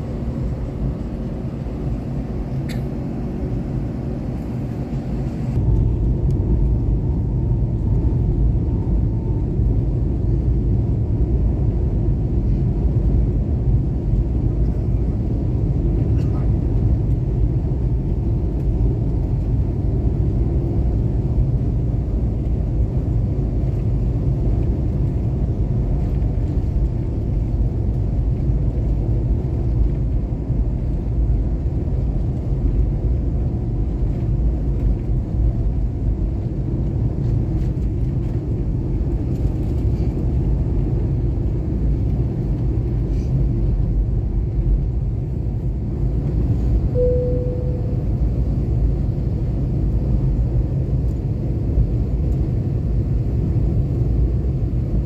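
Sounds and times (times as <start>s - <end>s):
airliner cabin rumble: 0.0s - 55.0s
short steady tone: 46.9s - 48.5s.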